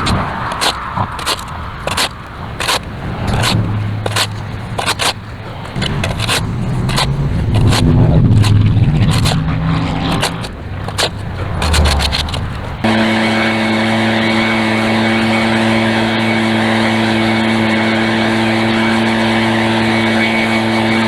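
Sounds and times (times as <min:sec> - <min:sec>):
shovel scraping concrete: 0:00.0 - 0:12.9
vehicle passing: 0:00.0 - 0:21.0.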